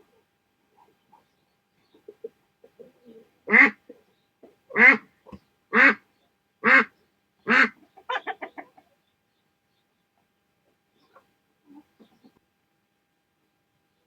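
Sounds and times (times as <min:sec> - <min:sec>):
duck quacking: 0:03.5 - 0:03.8, 0:04.7 - 0:06.0, 0:06.6 - 0:06.9, 0:07.5 - 0:08.8.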